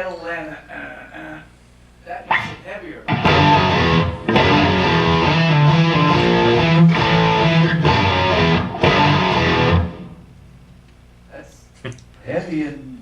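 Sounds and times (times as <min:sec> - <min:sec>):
distorted electric guitar riff: 0:02.3 - 0:10.3.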